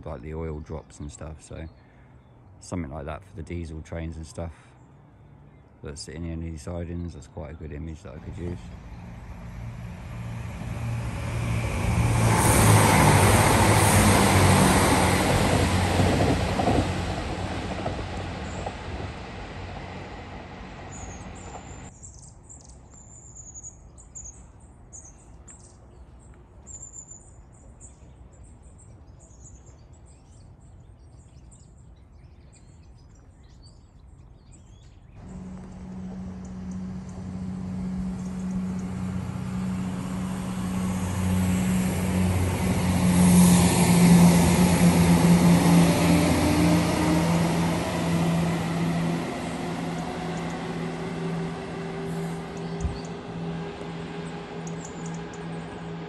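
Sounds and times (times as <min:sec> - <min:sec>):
train engine drone: 0:06.6 - 0:21.9, 0:35.2 - 0:56.0
train wheel noise: 0:08.3 - 0:21.9, 0:35.2 - 0:56.0
small birds chirping: 0:20.9 - 0:40.3, 0:47.4 - 0:56.0.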